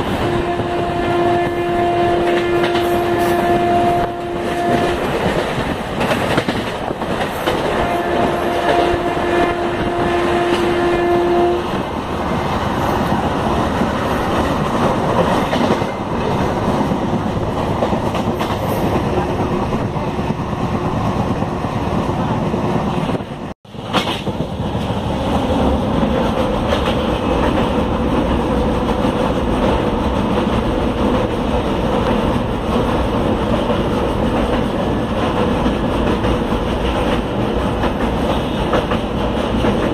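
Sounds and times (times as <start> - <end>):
train horn: 0.0 - 5.4, 7.6 - 11.8
train wheels rumbling on rails: 0.0 - 39.9.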